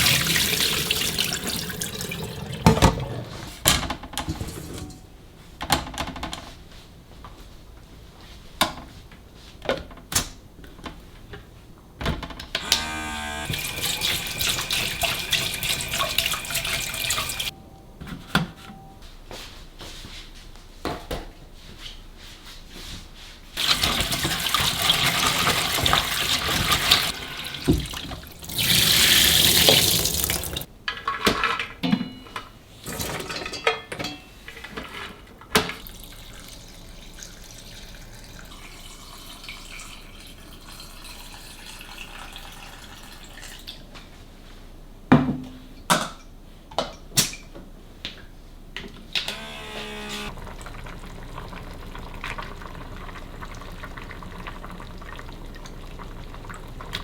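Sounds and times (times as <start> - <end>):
tap running into sink: 0.0 - 3.3, 12.6 - 17.5, 23.6 - 30.7.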